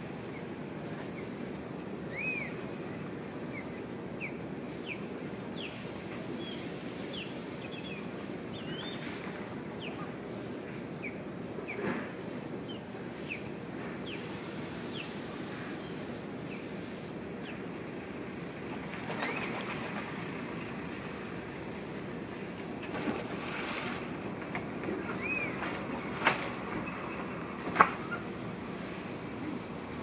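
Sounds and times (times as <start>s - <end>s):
low background hiss: 0.0s - 30.0s
birds chirping: 3.5s - 11.8s, 19.1s - 19.7s, 25.0s - 27.4s.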